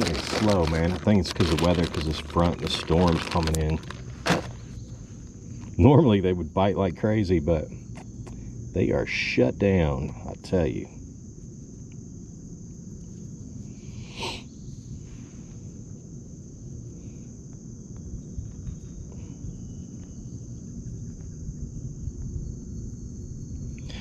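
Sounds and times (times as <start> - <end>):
insects chirring: 0.0 - 24.0
low outdoor rumble: 0.0 - 24.0.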